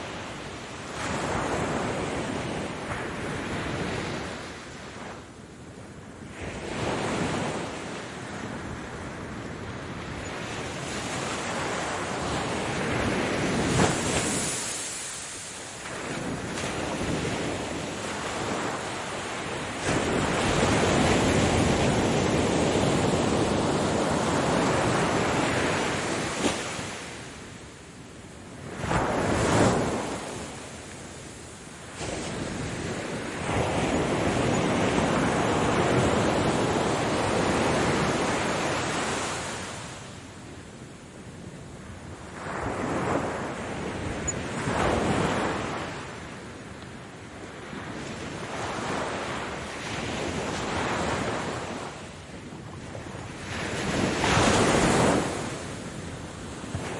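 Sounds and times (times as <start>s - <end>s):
waves breaking: 10.8s - 27.3s.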